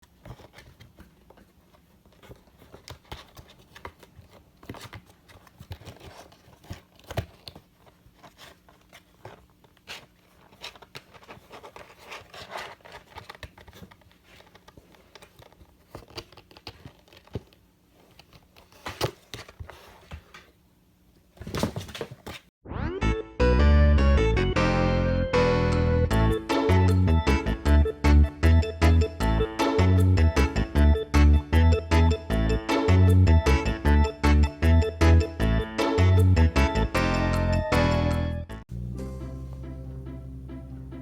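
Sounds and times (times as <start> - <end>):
crinkling rustles: 0.0 - 20.6.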